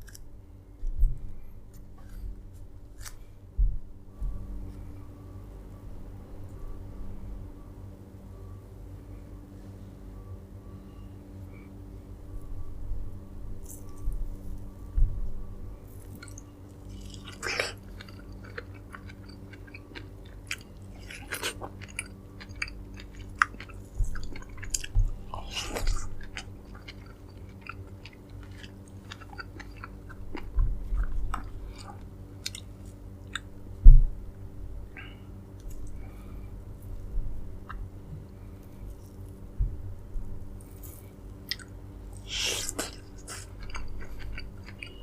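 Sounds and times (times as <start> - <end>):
steady low hum: 0.0 - 45.0
dull low thumps: 0.9 - 1.4, 3.5 - 4.7, 12.6 - 15.8, 24.0 - 25.3, 30.2 - 31.6, 33.6 - 34.8, 37.0 - 38.3, 39.5 - 40.5
chewing and biting fruit: 15.9 - 33.5, 40.6 - 45.0.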